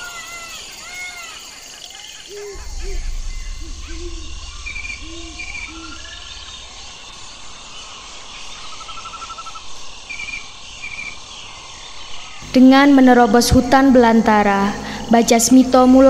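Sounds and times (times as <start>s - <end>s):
insect hiss: 0.0s - 16.0s
bird trill: 2.3s - 7.6s
bird chirps: 2.3s - 9.6s
low rumble: 2.5s - 8.3s, 12.4s - 16.0s.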